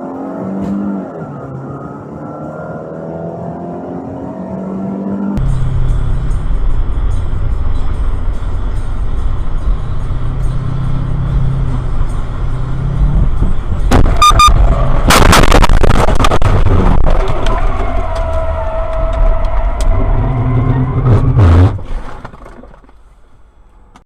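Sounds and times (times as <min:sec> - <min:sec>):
vehicle engine and road noise: 0:00.0 - 0:24.0
short beeps: 0:14.2 - 0:14.6
loud crashing impacts: 0:15.0 - 0:17.3.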